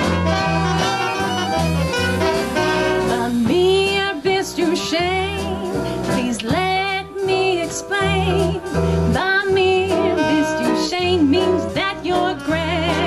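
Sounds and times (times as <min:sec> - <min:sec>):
swing band playing: 0:00.0 - 0:13.0
woman singing with vibrato: 0:02.7 - 0:13.0.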